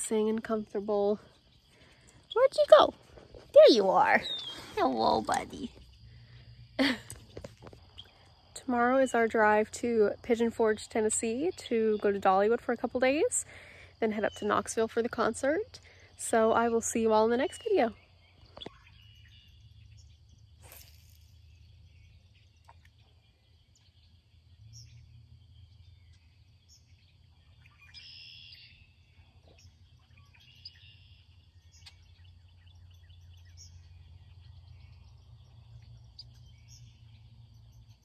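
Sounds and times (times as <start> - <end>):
insect calls: 0.0 - 38.0
bird chirps: 3.6 - 8.4, 17.2 - 38.0.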